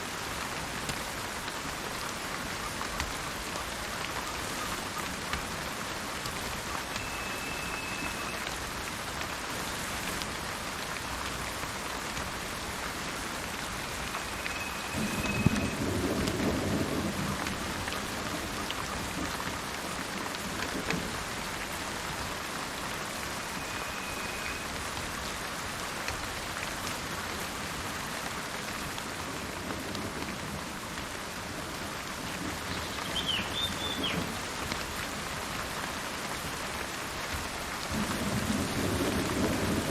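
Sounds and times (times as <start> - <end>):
rain falling: 0.0 - 39.9
bird whistling: 7.0 - 8.4, 14.3 - 15.7, 23.6 - 24.6, 32.8 - 34.2
thunder crack and rumble: 14.9 - 19.5, 37.8 - 39.9
bird chirp: 32.7 - 34.2.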